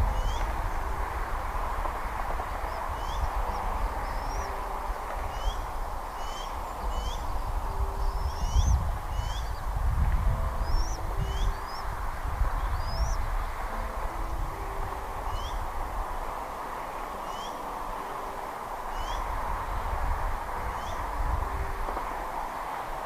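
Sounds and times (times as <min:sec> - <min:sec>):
eagle chirping whistles: 0:08.0 - 0:09.6.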